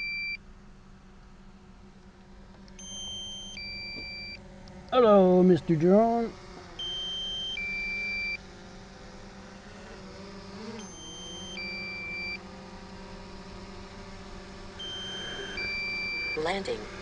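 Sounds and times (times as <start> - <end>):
two-tone warning beep: 0.0 - 0.4, 2.8 - 4.4, 6.8 - 8.4, 10.8 - 12.4, 14.8 - 16.5
drone propellers humming: 0.0 - 17.0.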